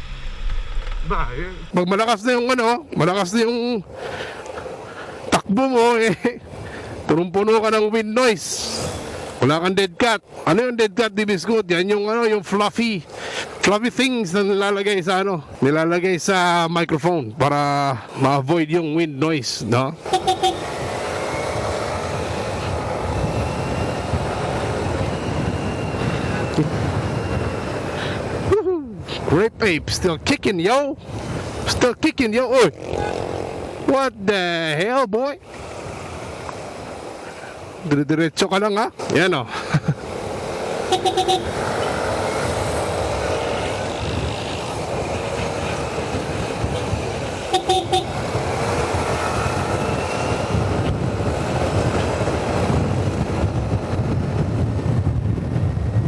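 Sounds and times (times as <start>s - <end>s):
road noise: 0.0s - 56.0s
scooter engine: 20.0s - 28.4s, 40.0s - 53.6s
rapid horn beeps: 20.1s - 20.7s, 40.9s - 41.6s, 47.5s - 48.2s
wind on microphone: 41.0s - 56.0s.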